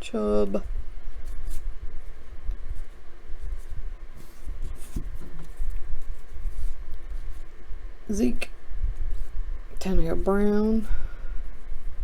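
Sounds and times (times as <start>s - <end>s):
trading cards brushing: 1.0s - 7.6s.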